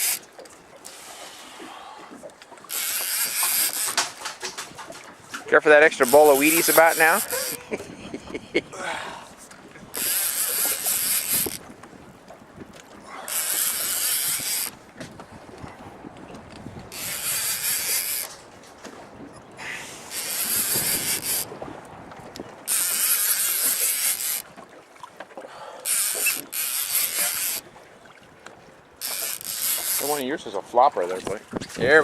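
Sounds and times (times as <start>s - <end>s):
fishing reel whirring and clicking: 0.0s - 1.6s, 2.6s - 5.0s, 5.7s - 7.8s, 9.9s - 11.7s, 13.1s - 14.8s, 16.8s - 18.4s, 19.6s - 21.5s, 22.6s - 24.5s, 25.8s - 27.7s, 29.0s - 30.2s.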